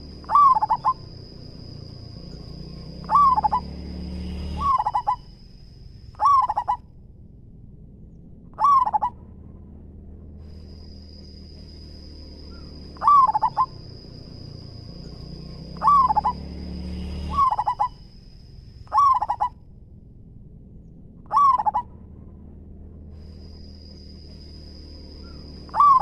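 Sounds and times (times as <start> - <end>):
dove cooing: 0.0 - 1.7, 2.6 - 3.8, 4.4 - 5.3, 6.2 - 6.8, 8.6 - 9.2, 12.5 - 14.4, 15.6 - 16.5, 17.3 - 18.0, 18.9 - 19.6, 21.3 - 21.9, 25.2 - 26.0
high-pitched whine: 0.0 - 26.0.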